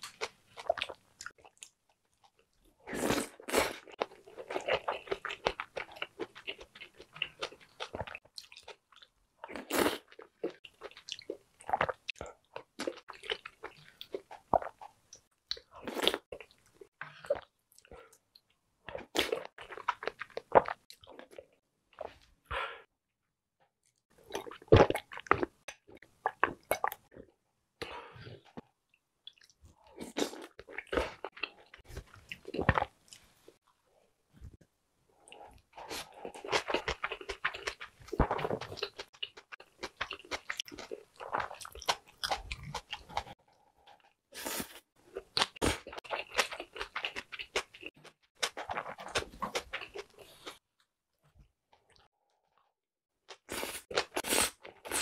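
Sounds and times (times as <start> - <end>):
chewing soft food: 35.2 - 50.6.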